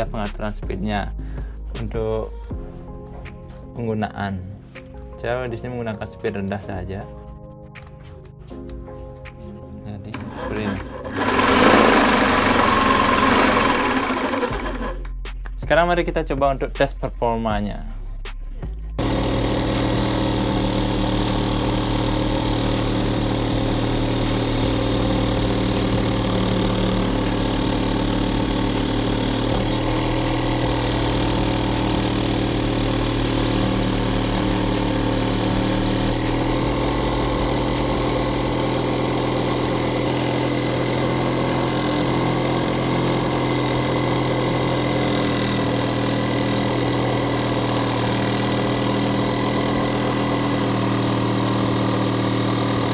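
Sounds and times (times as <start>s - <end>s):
electric drill motor hum: 10.2s - 15.1s, 19.0s - 52.9s.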